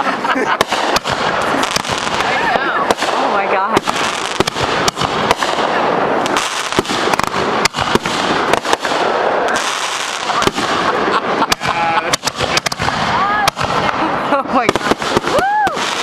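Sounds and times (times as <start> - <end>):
fireworks bangs and pops: 0.0 - 16.0
fireworks crackling: 0.0 - 16.0.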